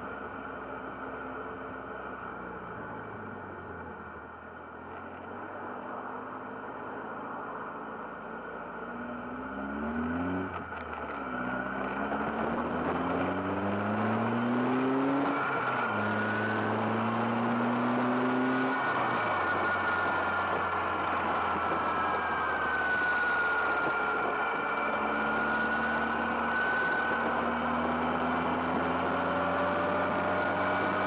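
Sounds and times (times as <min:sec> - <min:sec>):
wind and road noise: 0:00.0 - 0:31.0
car engine accelerating hard: 0:09.1 - 0:31.0.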